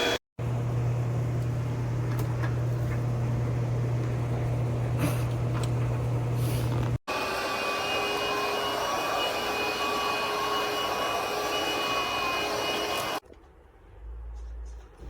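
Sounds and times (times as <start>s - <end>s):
stick vacuum motor whining: 6.7s - 13.2s.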